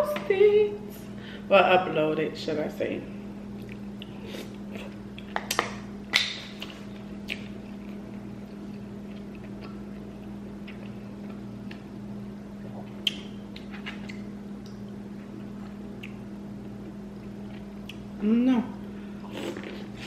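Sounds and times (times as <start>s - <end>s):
steady low hum: 0.0s - 20.0s
wet mouth clicks and smacks: 12.9s - 14.8s.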